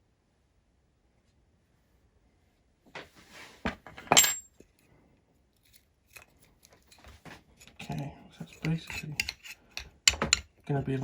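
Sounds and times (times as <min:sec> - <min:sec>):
metal object clattering on hard surface: 0:03.9 - 0:04.5.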